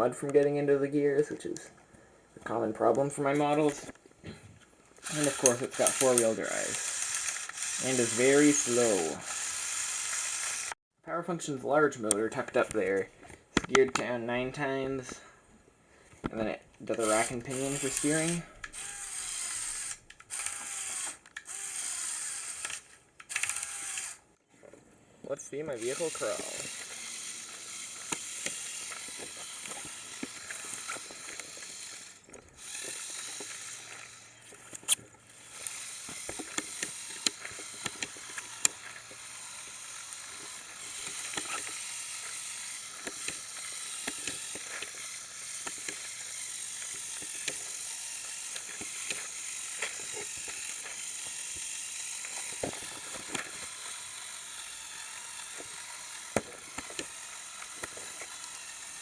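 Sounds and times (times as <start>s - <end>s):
toy motor and gear whir: 4.9s - 10.8s, 16.9s - 24.4s, 25.5s - 59.0s
small clicks and crackles: 25.8s - 59.0s.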